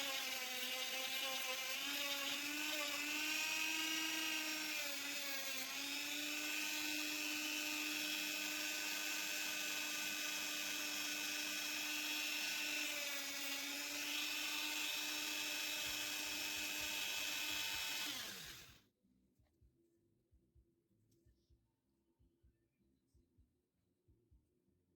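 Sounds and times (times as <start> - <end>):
power tool motor whining: 0.0 - 18.8.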